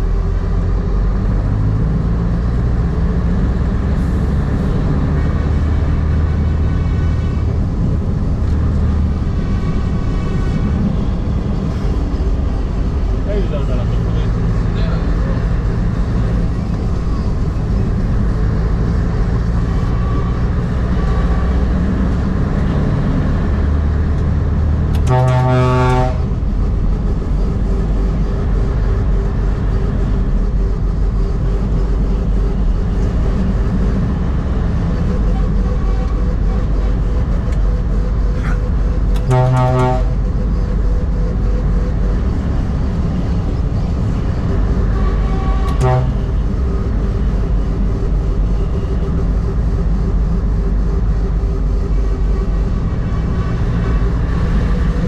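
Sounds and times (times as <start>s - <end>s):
truck engine and road noise: 0.0s - 55.0s
truck horn blasts: 6.2s - 8.1s, 24.8s - 26.4s, 38.4s - 40.5s, 44.7s - 46.8s.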